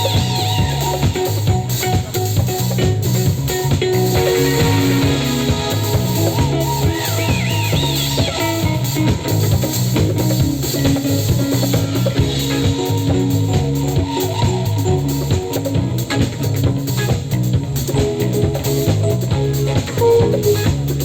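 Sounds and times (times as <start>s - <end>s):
bass line: 0.0s - 21.0s
drum kit beat: 0.0s - 21.0s
guitar: 0.0s - 21.0s
keyboards: 0.0s - 21.0s
wavering high lead line: 3.9s - 10.4s.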